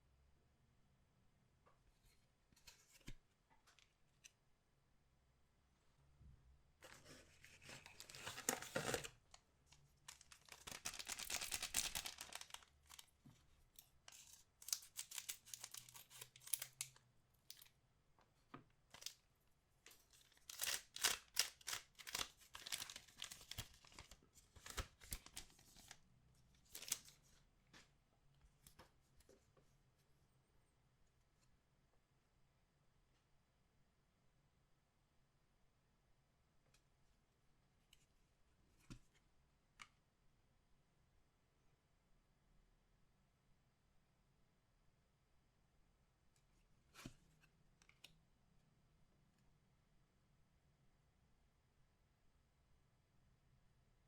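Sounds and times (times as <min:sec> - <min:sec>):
card packs ripping open: 0:07.6 - 0:09.2, 0:10.1 - 0:13.0, 0:14.1 - 0:16.8, 0:20.3 - 0:25.9
foil packaging crinkling: 0:10.1 - 0:13.1, 0:14.1 - 0:17.0, 0:20.1 - 0:26.0, 0:26.6 - 0:27.1.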